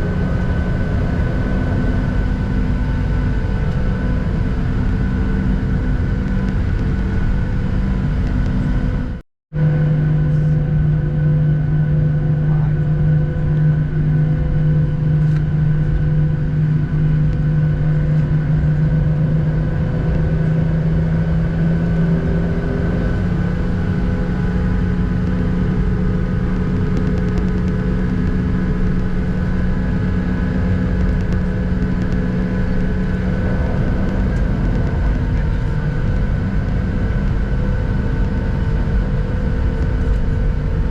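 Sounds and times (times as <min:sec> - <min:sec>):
jet engines droning in cabin: 0:00.0 - 0:40.9.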